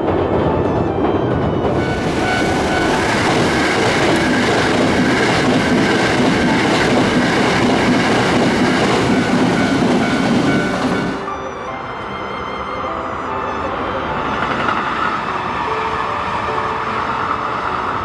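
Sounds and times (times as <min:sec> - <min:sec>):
electric train running past: 0:00.0 - 0:12.3, 0:13.1 - 0:18.0.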